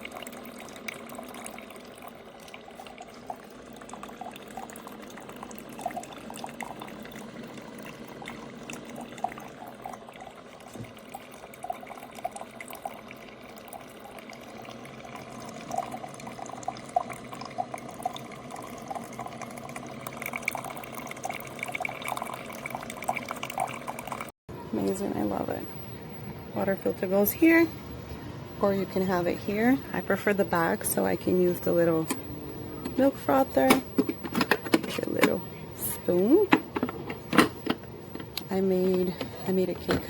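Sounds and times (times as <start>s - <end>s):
liquid trickling and pouring: 0.0s - 24.3s.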